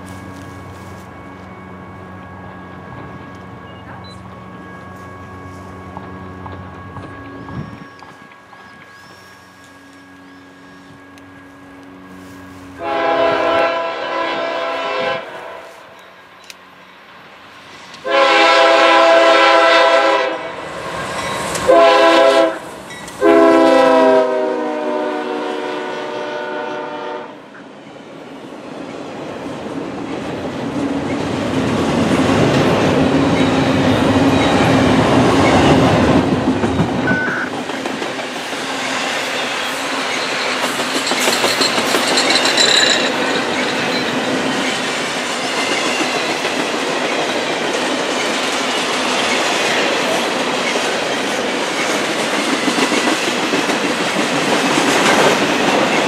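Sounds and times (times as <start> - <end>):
train wheels rumbling on rails: 0.0 - 56.0
locomotive air horn blasts: 9.6 - 16.0, 18.0 - 20.5, 21.7 - 27.4.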